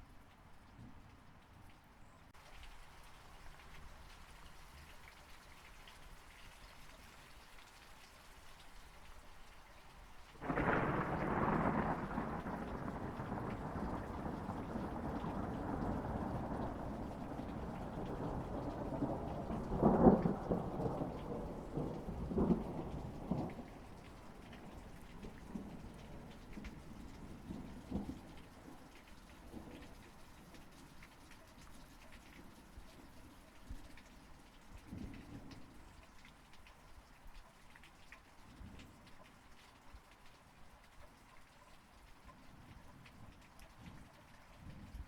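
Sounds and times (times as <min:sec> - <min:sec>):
steady rain falling: 0:00.0 - 0:45.0
rolling thunder: 0:10.4 - 0:28.3.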